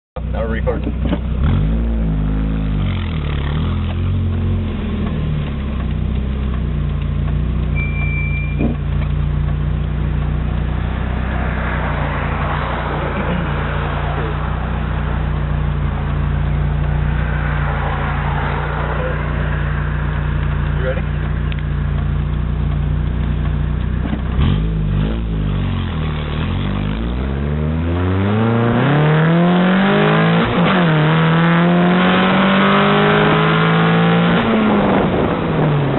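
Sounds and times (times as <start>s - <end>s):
car engine idling: 0.2s - 27.0s
car engine revving: 0.2s - 35.9s.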